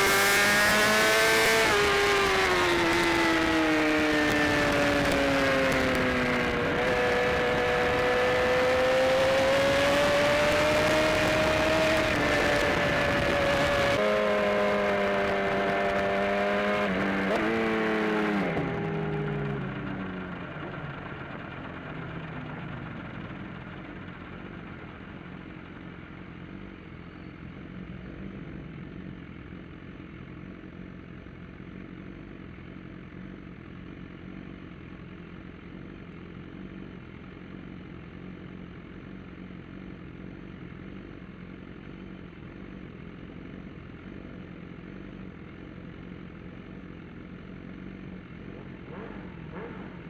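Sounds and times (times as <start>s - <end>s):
motorcycle engine idling: 18.6s - 50.0s.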